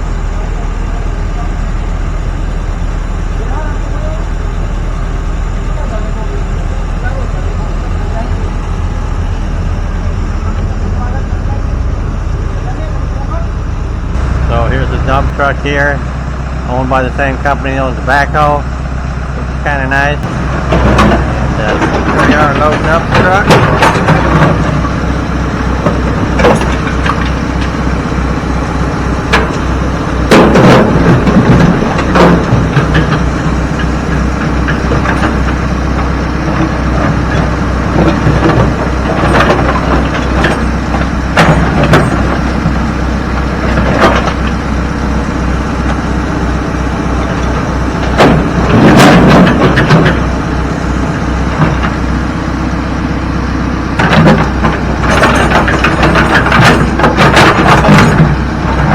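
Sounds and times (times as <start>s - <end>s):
diesel engine running: 0.0s - 58.9s
rocks dropping into truck bed: 30.3s - 35.5s, 47.4s - 50.3s.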